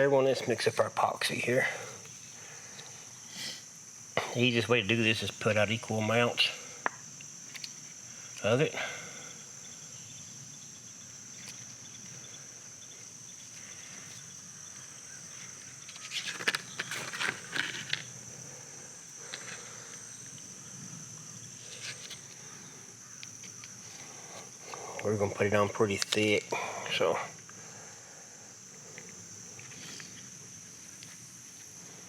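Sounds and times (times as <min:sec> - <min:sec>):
insects chirring: 0:00.0 - 0:32.0
handling clicks and rustles: 0:13.4 - 0:18.2.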